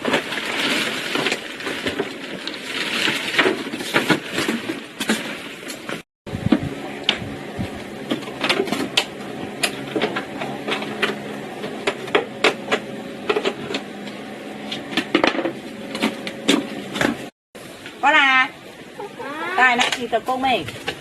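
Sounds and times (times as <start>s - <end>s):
steady low hum: 6.3s - 19.4s.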